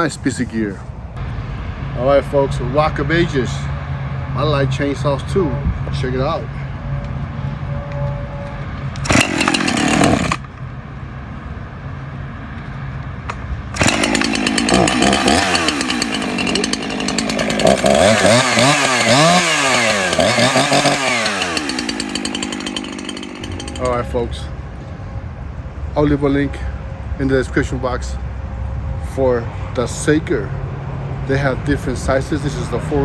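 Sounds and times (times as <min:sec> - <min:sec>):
electric chainsaw cutting: 0:09.0 - 0:10.5, 0:13.8 - 0:24.2.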